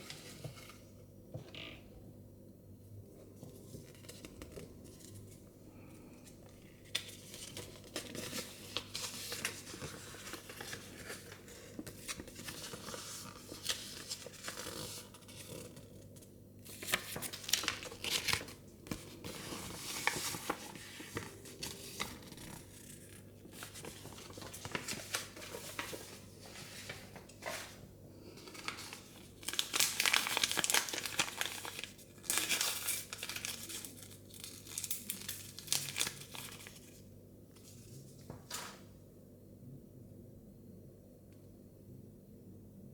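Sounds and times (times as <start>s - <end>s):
plastic wrapping tearing and crinkling: 28.6s - 36.8s.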